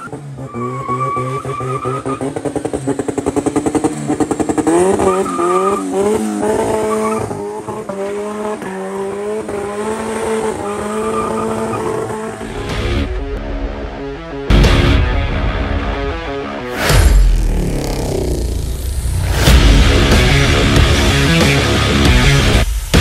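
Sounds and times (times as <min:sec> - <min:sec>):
turbocharged engine revving hard: 0:00.7 - 0:12.6.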